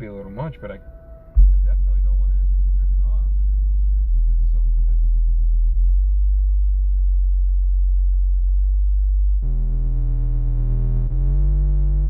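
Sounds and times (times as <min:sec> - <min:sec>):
bass-heavy electronic music: 0:00.7 - 0:12.0.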